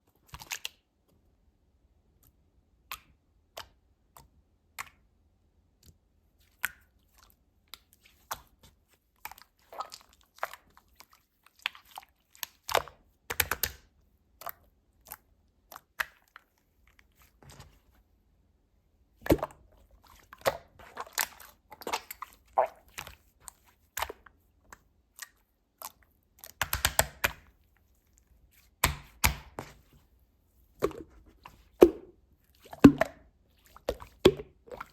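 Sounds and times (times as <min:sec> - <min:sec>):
slime squished by hand: 0:19.2 - 0:29.9, 0:30.8 - 0:34.9.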